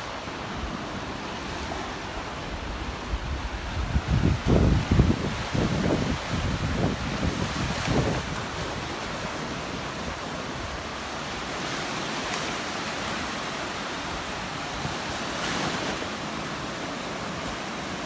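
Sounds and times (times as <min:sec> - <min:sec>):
surf washing onto beach: 0:00.0 - 0:18.0
wind buffeting microphone: 0:02.0 - 0:09.2.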